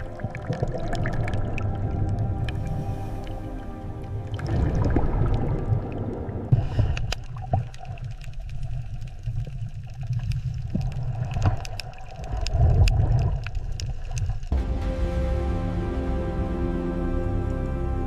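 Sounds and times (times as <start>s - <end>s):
underwater rumbling water: 0.0s - 17.6s
sharp clicks and pops: 6.6s - 14.6s.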